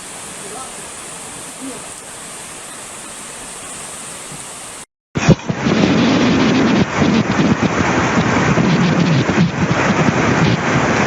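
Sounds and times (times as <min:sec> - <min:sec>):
rushing floodwater: 0:00.0 - 0:11.0
wind buffeting microphone: 0:05.2 - 0:11.0.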